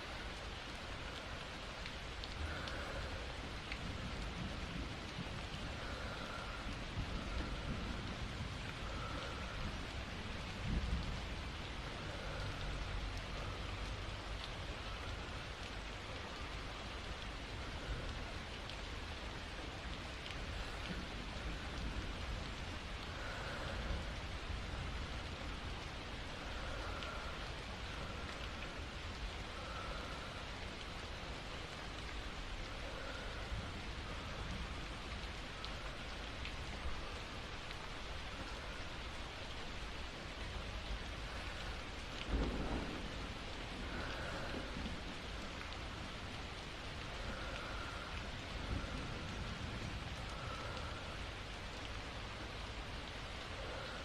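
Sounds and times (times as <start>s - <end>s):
soft slow breathing: 0.0s - 54.0s
steady rain falling: 0.0s - 54.0s
thunder rolling: 42.3s - 45.4s.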